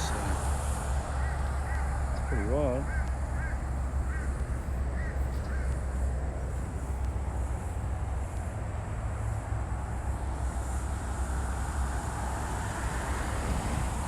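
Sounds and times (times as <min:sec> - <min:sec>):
bird calling: 0:01.0 - 0:06.2.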